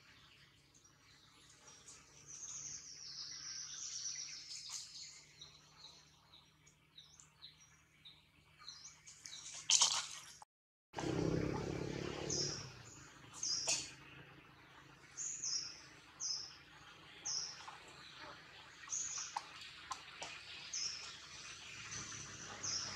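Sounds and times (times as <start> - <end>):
small bird chirping: 11.2 - 22.9.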